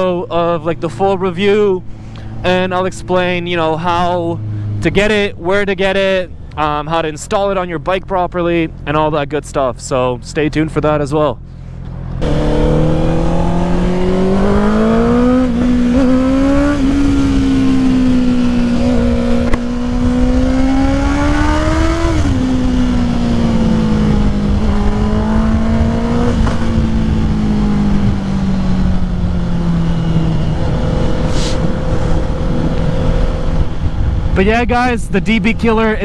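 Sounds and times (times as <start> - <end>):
motorcycle engine running loud: 11.7 - 36.0.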